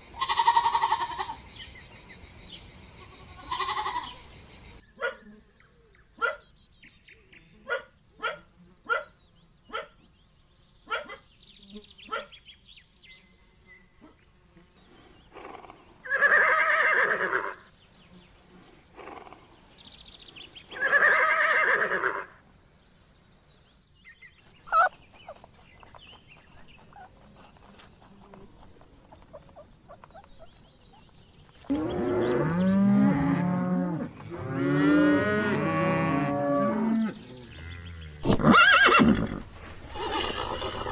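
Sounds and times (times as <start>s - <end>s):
farm animals calling: 0.0s - 1.5s, 3.0s - 4.3s, 15.3s - 17.7s, 20.7s - 22.4s, 24.4s - 40.9s.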